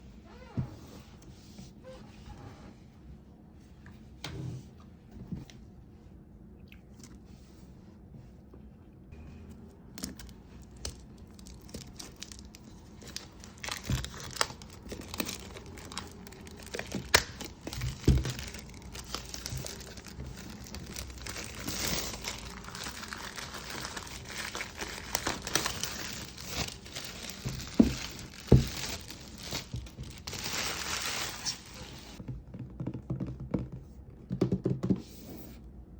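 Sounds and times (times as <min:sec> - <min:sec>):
plastic and paper crinkling: 0:09.9 - 0:32.2.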